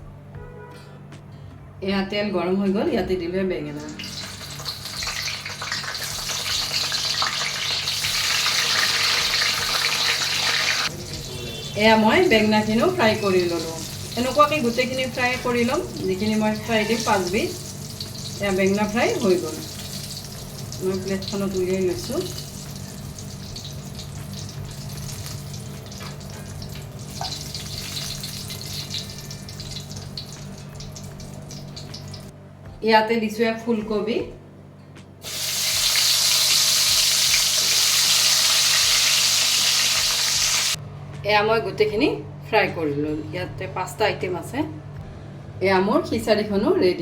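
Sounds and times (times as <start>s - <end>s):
food sizzling in oil: 3.8s - 32.3s, 35.2s - 40.8s.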